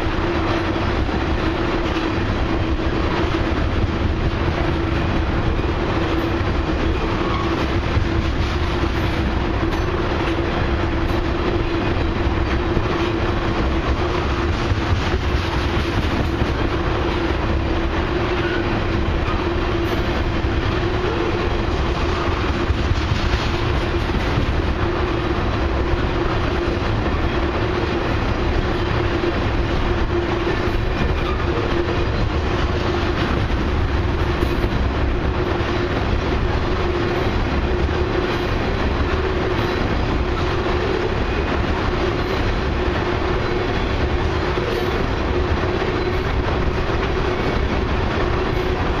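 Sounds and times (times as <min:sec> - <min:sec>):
clickety-clack of wheels on rails: 0:00.0 - 0:49.0
freight train rolling past: 0:00.0 - 0:49.0.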